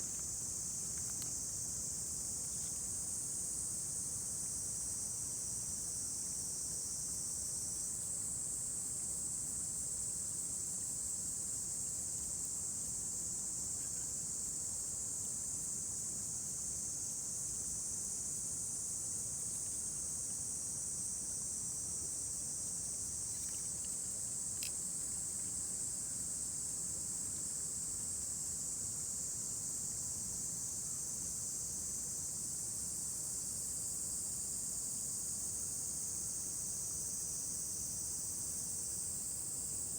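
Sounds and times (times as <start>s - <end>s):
insects chirping: 21.0s - 28.4s
faint click: 23.3s - 24.8s.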